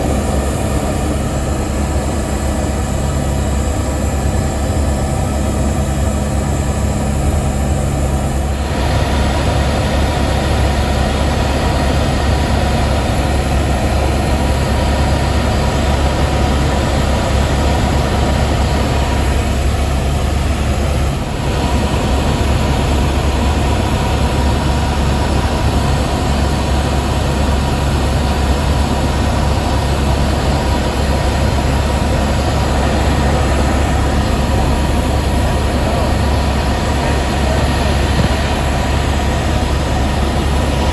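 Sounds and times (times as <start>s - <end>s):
helicopter cabin drone: 0.0s - 40.9s.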